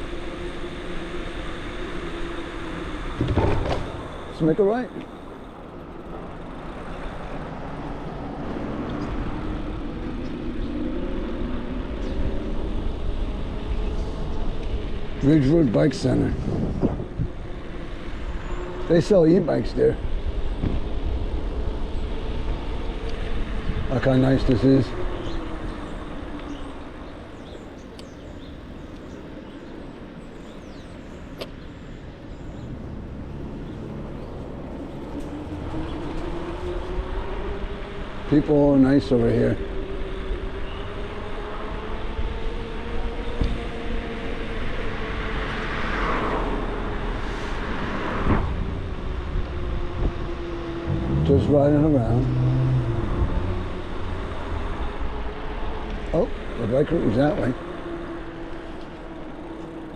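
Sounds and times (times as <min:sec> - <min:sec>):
faint motor hum: 0:00.0 - 0:59.9
road rumble: 0:00.0 - 0:59.9
wind: 0:00.0 - 0:59.9
wind on microphone: 0:07.5 - 0:18.7, 0:39.7 - 0:56.1.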